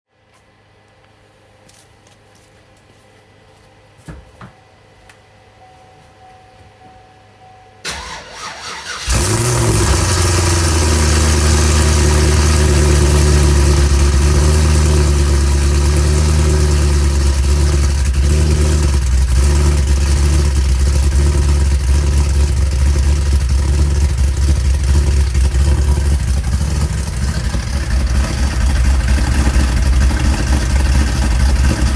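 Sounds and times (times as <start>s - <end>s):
car engine idling: 7.9s - 31.9s.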